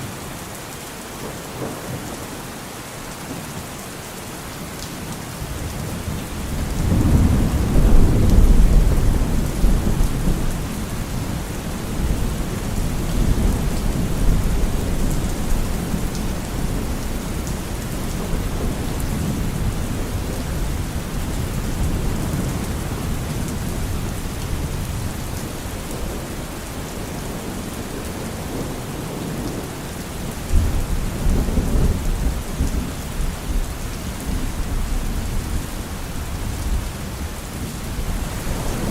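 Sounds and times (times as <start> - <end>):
heavy rain: 0.0 - 38.9
rolling thunder: 5.6 - 26.4.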